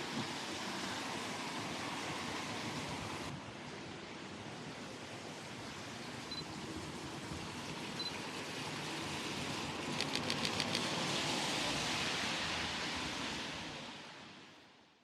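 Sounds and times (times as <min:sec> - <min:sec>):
passing traffic: 0:00.0 - 0:14.4
sharp clicks: 0:09.9 - 0:10.9.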